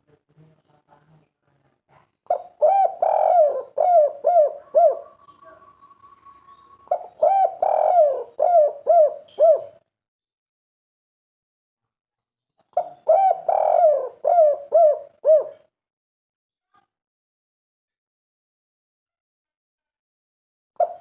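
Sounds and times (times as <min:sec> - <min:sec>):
dove cooing: 0:02.3 - 0:09.8, 0:12.7 - 0:15.7, 0:20.8 - 0:21.0.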